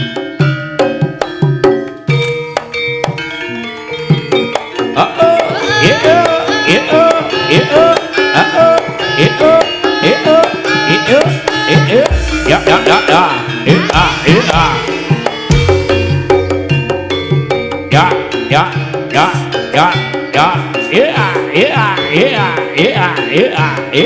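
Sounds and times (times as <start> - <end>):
hand drums playing fast: 0.0 - 24.0
repeating tuned melody: 0.0 - 24.0
deep low note: 12.1 - 16.3.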